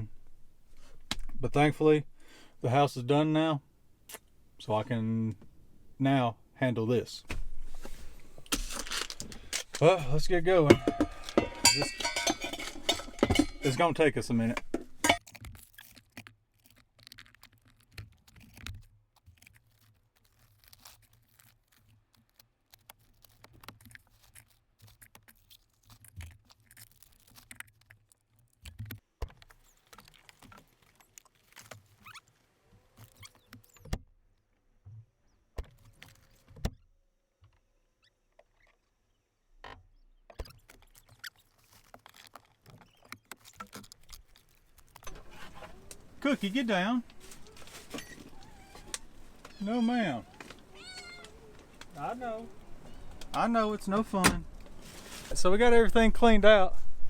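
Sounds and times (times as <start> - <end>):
rustling of loose items: 7.4 - 33.8, 40.5 - 55.6
knocks and clinks of items: 8.5 - 15.2.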